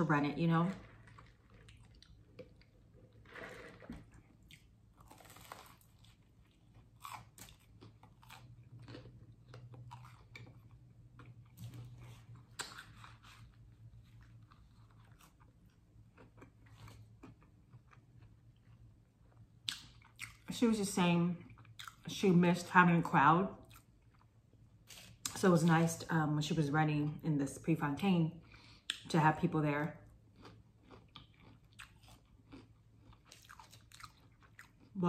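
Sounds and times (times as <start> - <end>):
person chewing crunchy food: 0.7 - 20.5, 21.4 - 22.1, 30.0 - 35.0.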